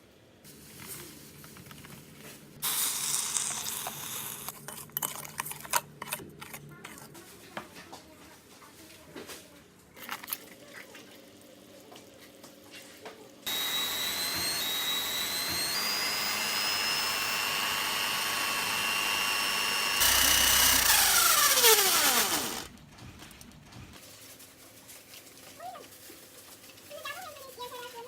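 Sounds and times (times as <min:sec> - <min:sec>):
electric drill whining: 0:13.5 - 0:22.7.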